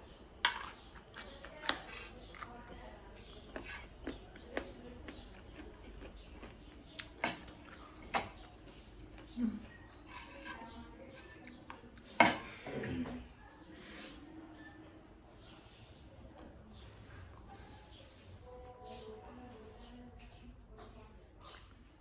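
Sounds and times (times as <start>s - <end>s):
close chewing with mouth clicks: 0.6s - 10.0s.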